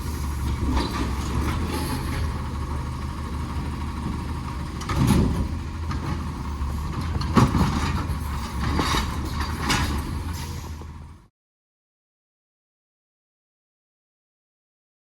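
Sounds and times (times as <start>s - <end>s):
garbage truck diesel engine rumbling: 0.0s - 11.3s.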